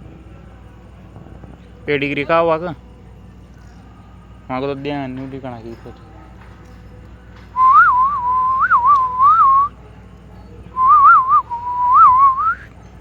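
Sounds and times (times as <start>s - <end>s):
person whistling: 7.6s - 9.7s, 10.8s - 12.7s.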